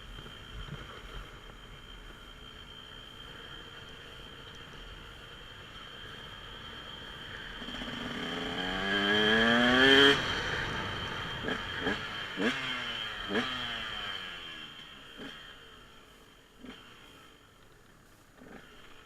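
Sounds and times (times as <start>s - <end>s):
dirt bike engine revving: 6.0s - 15.6s, 16.6s - 17.2s, 18.4s - 19.0s.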